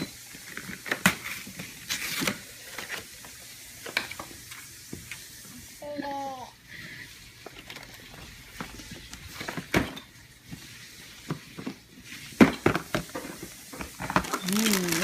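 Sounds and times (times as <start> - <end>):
gift packaging rustling: 13.4 - 15.0.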